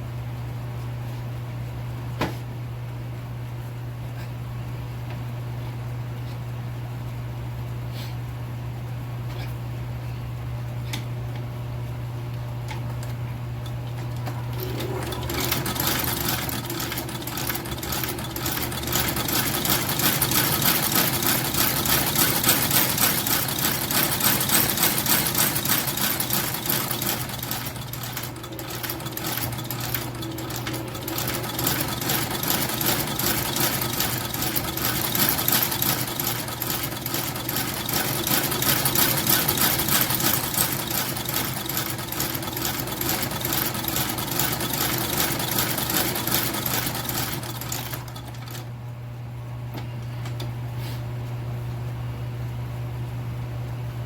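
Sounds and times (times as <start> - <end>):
sewing machine motor humming: 13.0 - 48.7.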